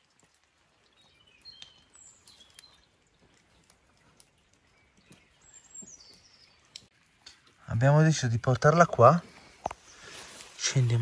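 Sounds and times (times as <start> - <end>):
faint bird chirps: 0.9 - 6.9.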